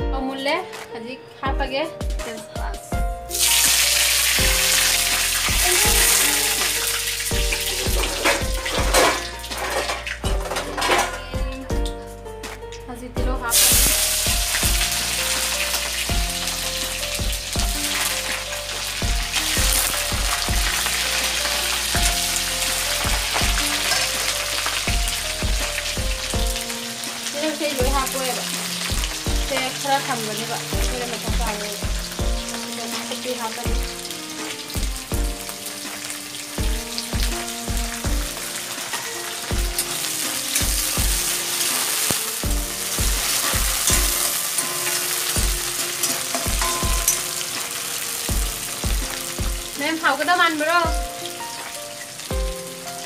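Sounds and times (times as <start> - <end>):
background music with beat: 0.0 - 49.8, 50.7 - 53.0
food sizzling in hot oil: 2.3 - 12.6, 13.4 - 53.0
metal spatula scraping: 3.4 - 11.4, 41.3 - 48.8.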